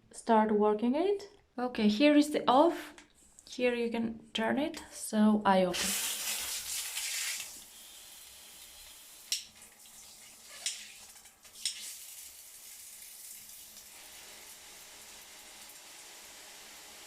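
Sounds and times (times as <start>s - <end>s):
water spraying from shower head: 5.8s - 9.4s.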